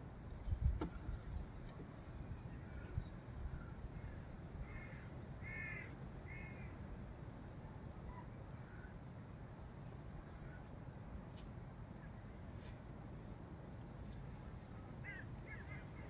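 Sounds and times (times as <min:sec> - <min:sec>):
crow cawing: 0:04.6 - 0:06.6.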